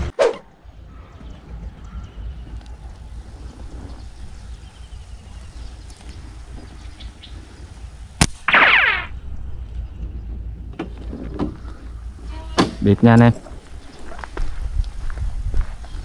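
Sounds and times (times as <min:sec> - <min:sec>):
wind rumble: 0:00.0 - 0:12.3, 0:13.3 - 0:16.0
whizzing tone falling in pitch: 0:08.5 - 0:09.2.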